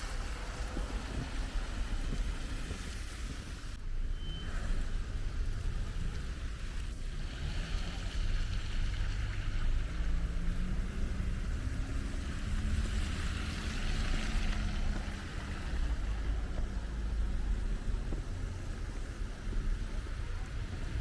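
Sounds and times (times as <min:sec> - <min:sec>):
vehicle engine humming: 0:00.0 - 0:21.0
wind rumble on microphone: 0:00.0 - 0:21.0.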